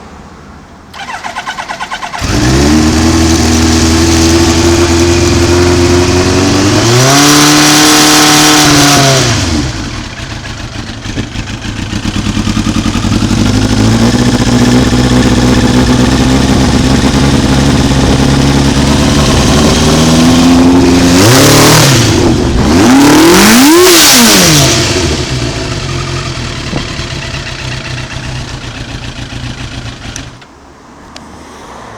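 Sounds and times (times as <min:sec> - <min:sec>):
motorcycle engine idling and revving: 0:00.9 - 0:31.2
starter motor cranking: 0:01.0 - 0:03.9.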